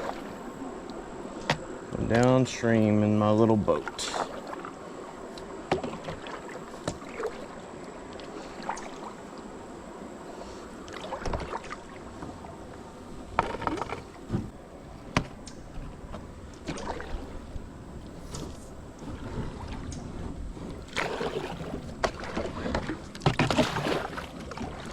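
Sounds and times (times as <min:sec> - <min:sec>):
running water: 0:00.0 - 0:14.3, 0:15.7 - 0:24.9
paddle knocks and splashes: 0:05.6 - 0:09.1, 0:10.9 - 0:12.5, 0:13.3 - 0:17.6, 0:18.2 - 0:24.9.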